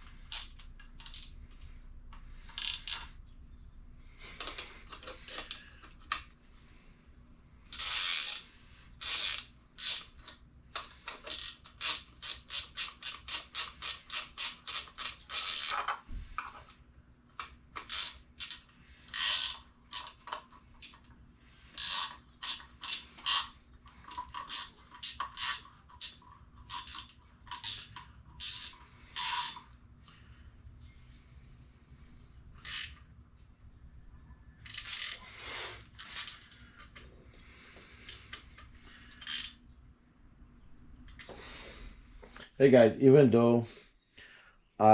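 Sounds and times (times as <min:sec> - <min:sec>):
ratchet wrench clicking: 0:00.2 - 0:01.4, 0:02.5 - 0:03.1, 0:07.7 - 0:15.9, 0:17.4 - 0:21.0, 0:21.7 - 0:29.8, 0:32.6 - 0:33.0, 0:34.6 - 0:35.2, 0:39.1 - 0:39.6.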